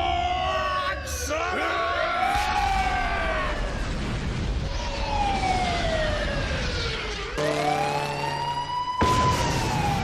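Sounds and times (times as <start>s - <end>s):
wailing siren: 0.0s - 10.0s.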